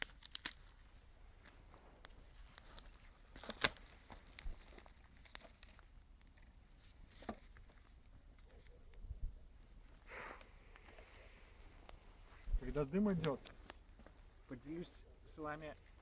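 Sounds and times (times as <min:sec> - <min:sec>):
wood campfire crackling: 0:00.0 - 0:16.0.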